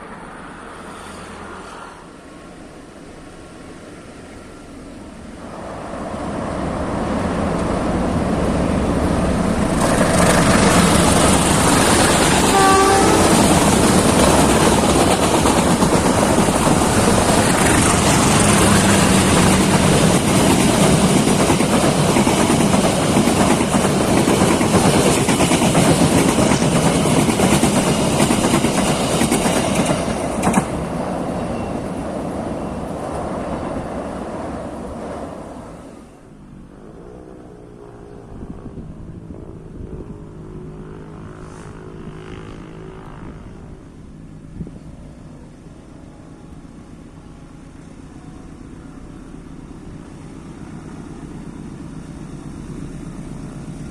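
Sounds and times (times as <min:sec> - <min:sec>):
train passing: 0:00.0 - 0:53.9
train horn toot: 0:12.3 - 0:13.7.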